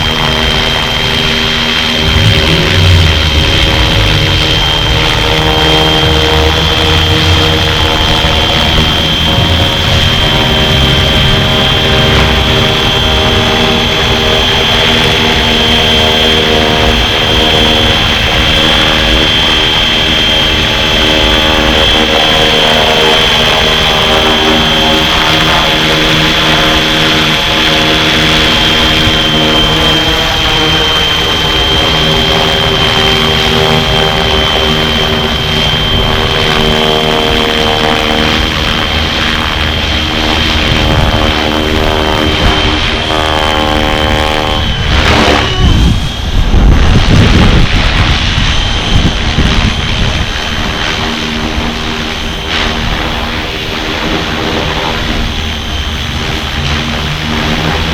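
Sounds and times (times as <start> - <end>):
electric motor whining: 0.0 - 57.9
rotor humming: 0.0 - 57.9.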